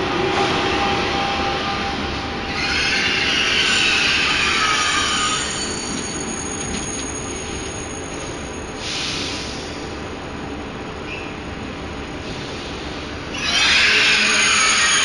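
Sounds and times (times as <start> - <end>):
train rumbling: 0.0 - 15.0
wheel or brake squeal: 2.5 - 8.2, 13.4 - 15.0.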